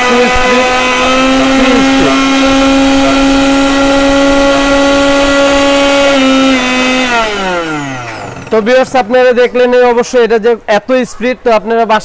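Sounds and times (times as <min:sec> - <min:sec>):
mixer grinder motor whine: 0:00.0 - 0:09.2.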